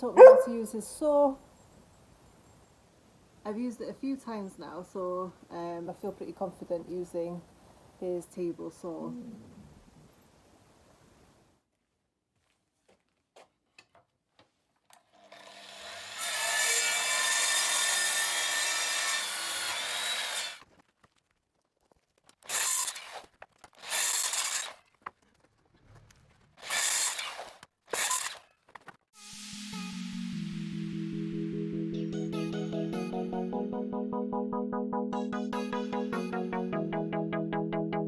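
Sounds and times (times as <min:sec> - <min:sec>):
table saw cutting wood: 0:15.4 - 0:20.6.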